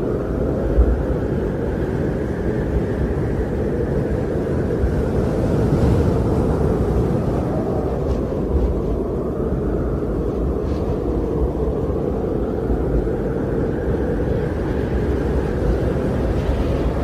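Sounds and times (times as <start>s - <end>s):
wind blowing: 0.0s - 17.0s.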